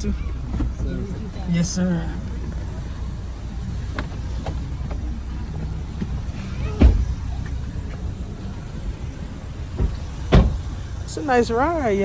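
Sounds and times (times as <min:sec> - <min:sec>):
car road and engine rumble: 0:00.0 - 0:12.0
sharp thump: 0:09.8 - 0:10.9.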